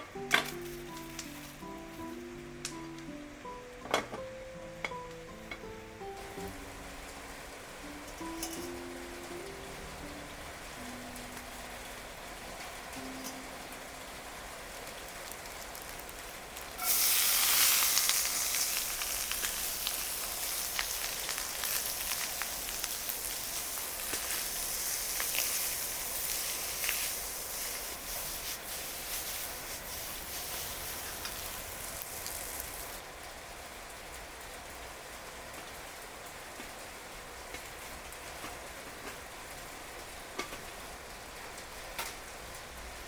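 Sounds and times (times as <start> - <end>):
faint steady hiss: 0.0 - 43.0
food sizzling in a skillet: 15.0 - 33.0.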